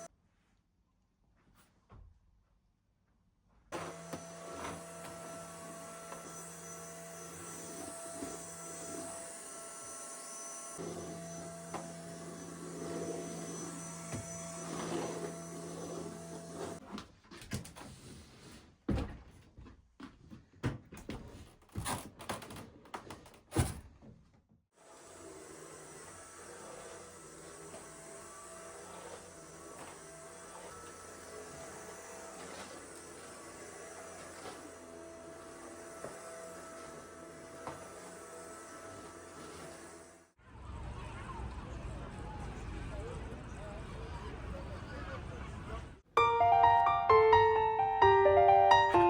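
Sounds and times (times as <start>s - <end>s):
small electric motor humming: 3.8s - 16.8s.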